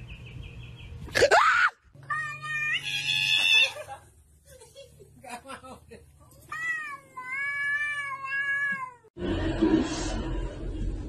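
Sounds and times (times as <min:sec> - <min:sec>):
cat meowing: 0:06.5 - 0:09.1.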